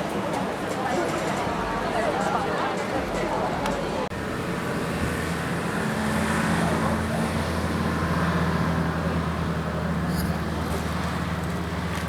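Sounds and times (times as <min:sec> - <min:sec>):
traffic noise: 0:00.0 - 0:12.0
vehicle engine drone: 0:04.1 - 0:12.0.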